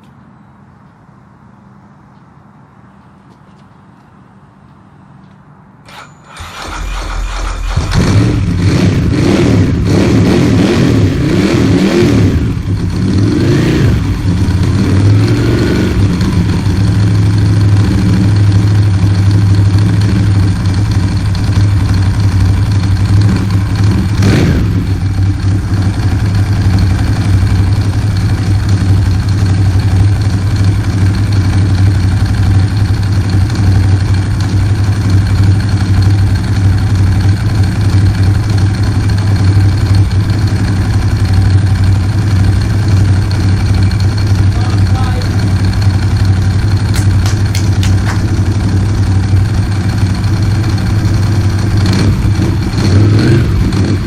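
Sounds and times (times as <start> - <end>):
motorcycle engine revving and idling: 6.4 - 54.0
short sharp engine noise: 43.6 - 52.8.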